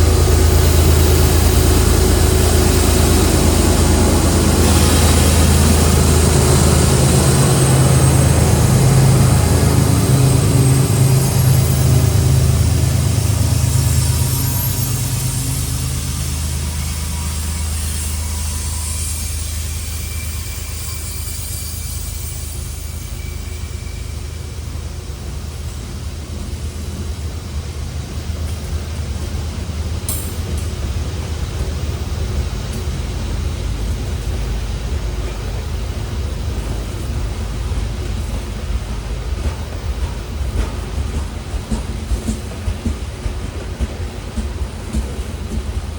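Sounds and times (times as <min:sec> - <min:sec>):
hiss: 0:00.0 - 0:30.0
freight train rumbling: 0:00.0 - 0:45.9
locomotive engine drone: 0:00.0 - 0:45.9.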